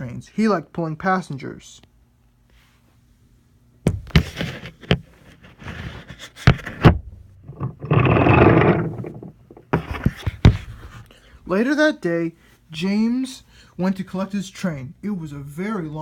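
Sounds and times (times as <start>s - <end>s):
wooden piece scraping: 3.9s - 11.0s
wooden clacks and knocks: 6.5s - 10.8s.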